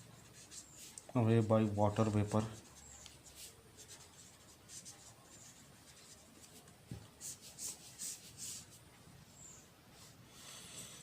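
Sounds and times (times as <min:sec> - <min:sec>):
pen scratching on paper: 0:00.0 - 0:01.0, 0:02.2 - 0:06.6, 0:07.2 - 0:08.8.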